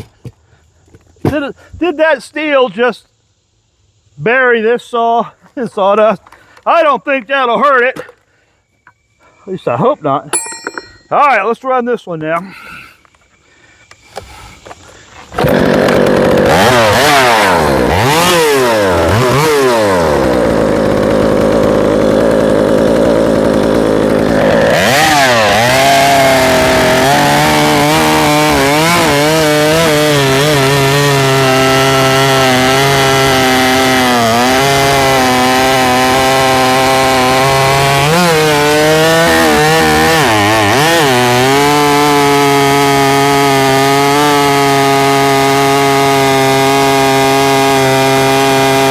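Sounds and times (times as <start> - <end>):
chainsaw revving and cutting log: 15.3 - 48.9.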